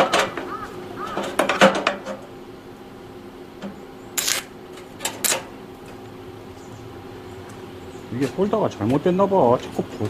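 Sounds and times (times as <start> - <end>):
welding arc crackling bursts: 4.2 - 4.5.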